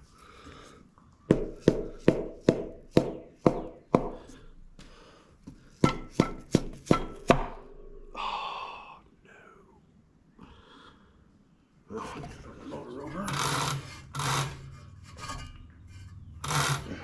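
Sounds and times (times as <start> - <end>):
hammer knocking on metal: 1.3 - 4.2, 5.8 - 7.7.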